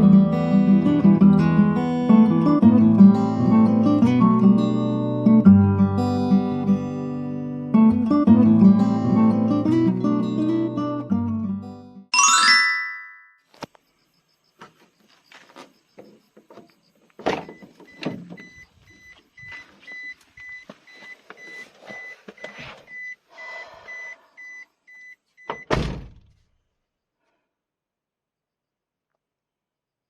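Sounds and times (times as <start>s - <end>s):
guitar music: 0.0s - 13.2s.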